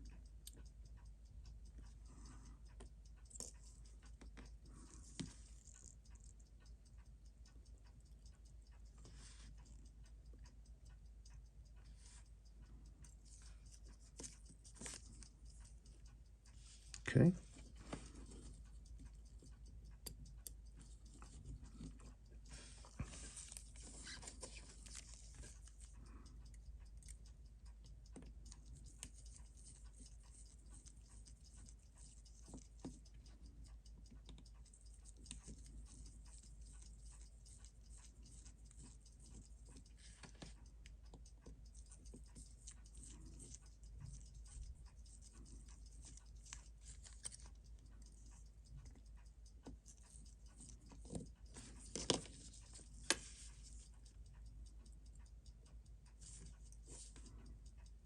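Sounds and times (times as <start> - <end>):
steady low hum: 0.0 - 58.0
small tool clicks and scrapes: 41.4 - 53.9.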